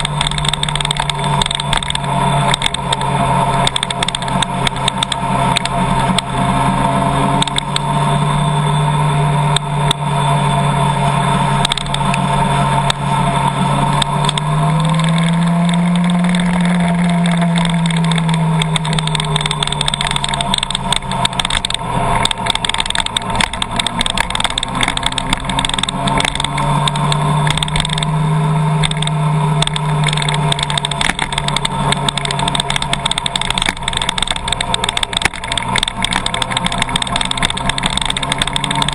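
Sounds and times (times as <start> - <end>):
car engine: 0.0 - 38.9
road noise: 0.0 - 38.9.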